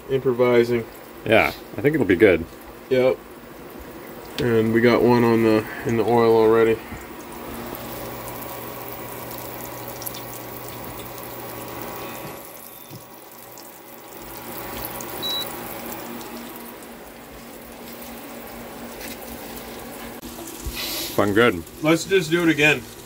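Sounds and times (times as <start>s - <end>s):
fish frying in hot oil: 0.0s - 23.0s
high beep: 15.2s - 15.5s.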